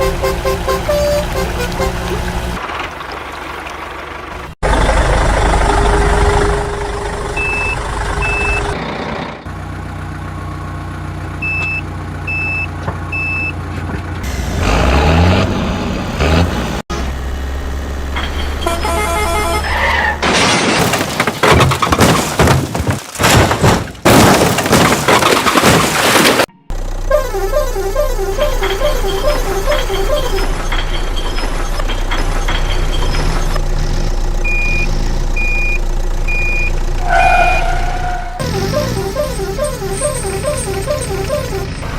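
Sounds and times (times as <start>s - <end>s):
construction vehicle engine: 0.0s - 20.4s, 26.4s - 41.9s
reversing alarm beeps: 7.4s - 8.8s, 11.4s - 13.5s, 34.4s - 36.8s.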